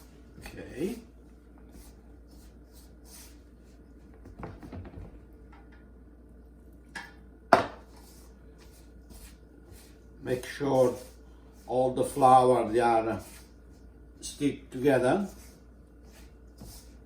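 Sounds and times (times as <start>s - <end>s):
dough mixed in a bowl: 0.0s - 4.2s, 7.8s - 17.0s.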